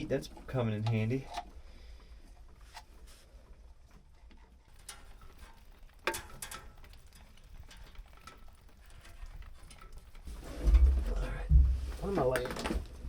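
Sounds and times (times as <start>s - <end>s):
clicks and knocks on metal: 4.3s - 12.9s.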